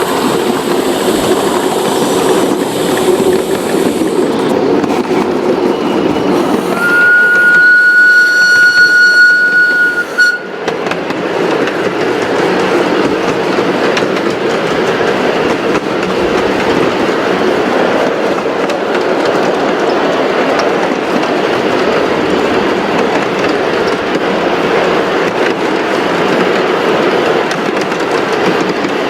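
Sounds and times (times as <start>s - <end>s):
train rolling clatter: 0.0s - 29.0s
train whistle long note: 6.7s - 10.6s.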